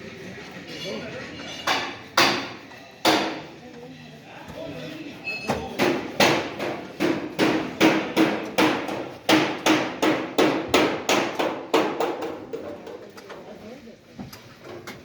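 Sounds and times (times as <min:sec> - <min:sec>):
hammer striking: 0:01.6 - 0:03.5, 0:05.8 - 0:12.6.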